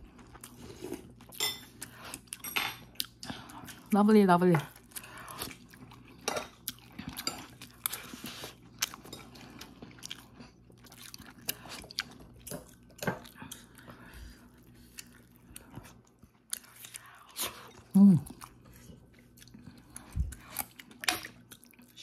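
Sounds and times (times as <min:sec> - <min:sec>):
person chewing food: 0:00.0 - 0:03.9, 0:04.7 - 0:22.0.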